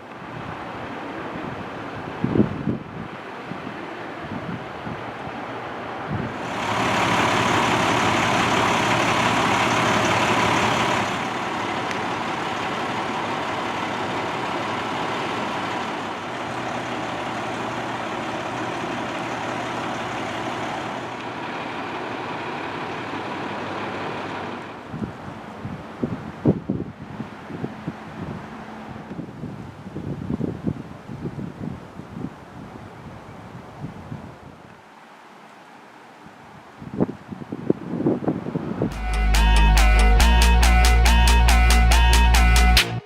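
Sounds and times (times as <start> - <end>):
diesel truck engine running: 6.1 - 26.4, 38.8 - 43.0.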